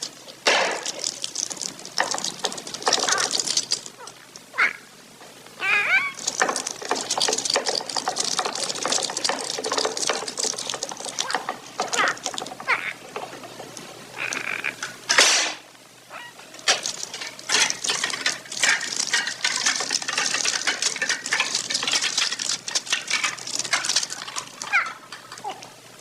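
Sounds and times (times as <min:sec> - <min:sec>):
bird pecking clicks and taps: 0:00.5 - 0:04.1.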